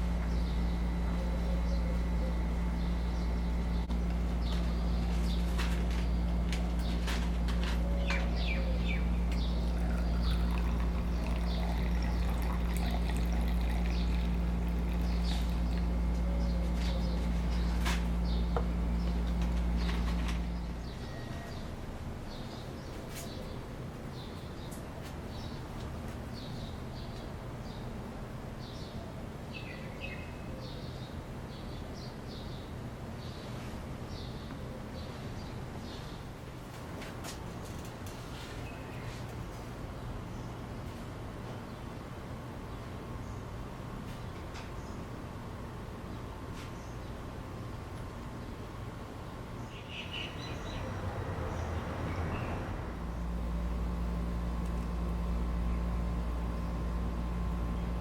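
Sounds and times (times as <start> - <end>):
low background rumble: 0.0 - 22.4, 49.8 - 58.0
low electrical hum: 0.0 - 58.0
small birds chirping: 7.9 - 19.2, 49.5 - 52.6.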